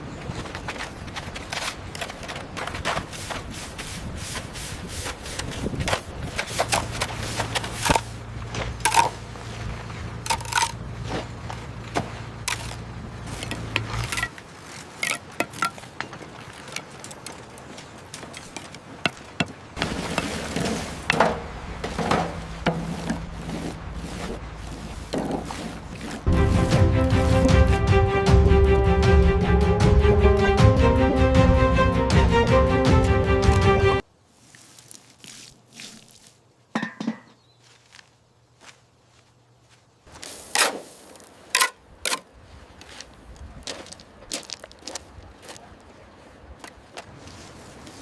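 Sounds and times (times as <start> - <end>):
scraping on wood and debris: 0.3 - 26.3, 34.4 - 38.1.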